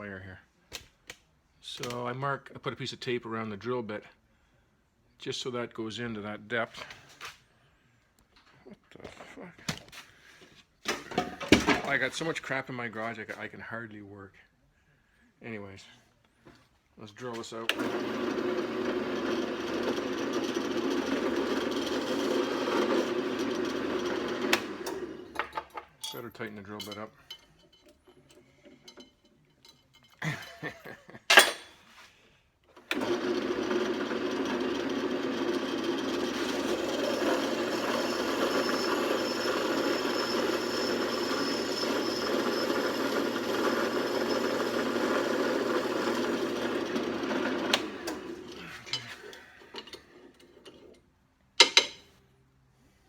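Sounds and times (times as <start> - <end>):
electric drill drilling metal: 17.7 - 25.4, 32.9 - 48.7.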